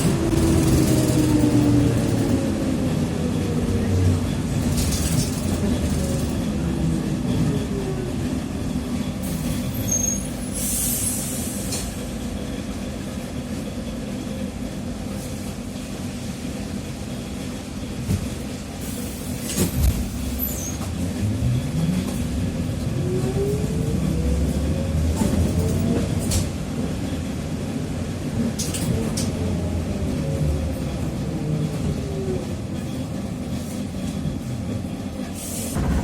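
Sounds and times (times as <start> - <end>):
trolleybus motor whining: 0.0 - 9.1.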